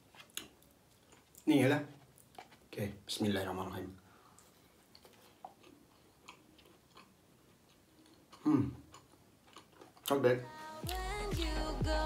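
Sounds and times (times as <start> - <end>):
chewing crunchy food: 0.2 - 2.7, 4.3 - 10.2.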